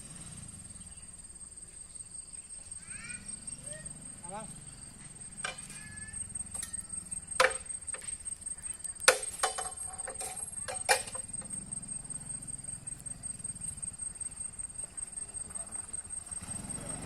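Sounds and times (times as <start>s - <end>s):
high-pitched insect trill: 0.0s - 17.0s
sharp clicks and knocks: 5.4s - 5.9s, 6.5s - 8.4s, 9.0s - 11.6s.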